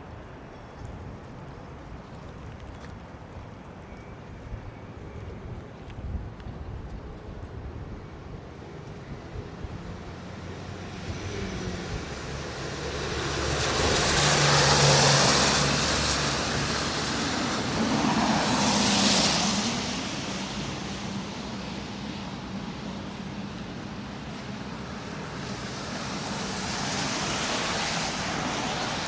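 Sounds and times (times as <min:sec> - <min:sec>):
steady traffic noise: 0:00.0 - 0:29.0
vehicles passing close by: 0:08.8 - 0:29.0.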